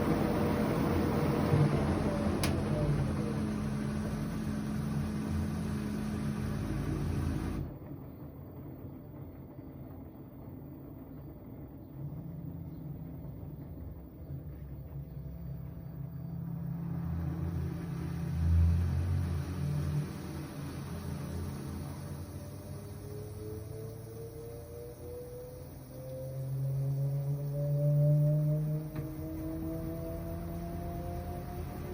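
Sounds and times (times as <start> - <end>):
low rumbling hum: 0.0 - 31.9
washing machine motor and drum: 0.0 - 31.9.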